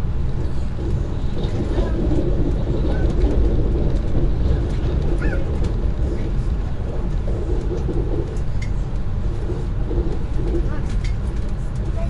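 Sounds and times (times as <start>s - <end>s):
electric train running rumble: 0.0s - 12.0s.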